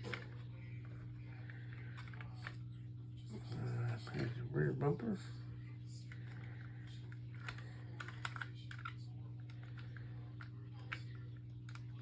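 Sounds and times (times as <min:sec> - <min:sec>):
low electrical hum: 0:00.0 - 0:12.0
plastic parts clicking and tapping: 0:07.3 - 0:12.0.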